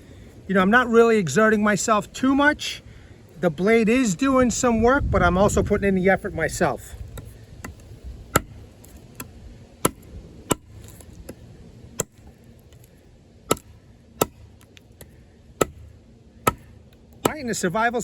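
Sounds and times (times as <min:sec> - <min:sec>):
knife chopping into wood: 0:07.1 - 0:11.4, 0:12.0 - 0:12.9, 0:13.5 - 0:17.5.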